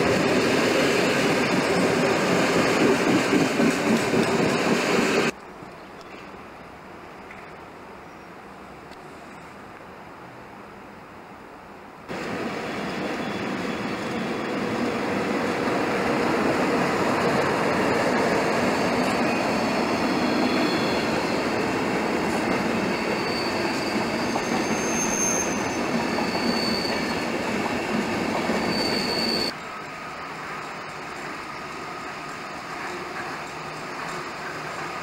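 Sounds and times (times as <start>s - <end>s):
train wheels rumbling on rail: 0.0s - 5.4s, 12.1s - 35.0s
high wheel squeals: 12.7s - 14.7s, 16.6s - 29.6s.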